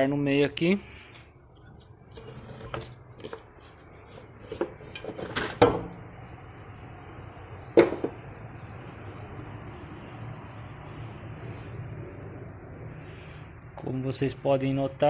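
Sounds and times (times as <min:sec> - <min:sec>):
plastic housing clicks and knocks: 0:07.8 - 0:08.2.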